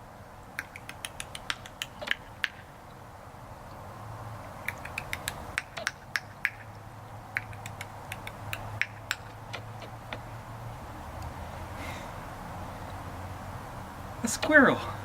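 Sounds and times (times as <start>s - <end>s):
person clicking tongue: 0.6s - 2.6s, 4.6s - 6.7s, 7.4s - 9.6s.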